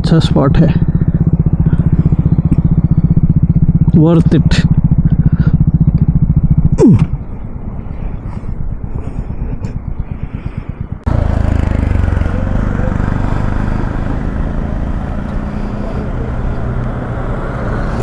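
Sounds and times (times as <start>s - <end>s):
motorcycle engine: 0.0s - 18.0s
wind noise over microphone: 4.7s - 11.1s.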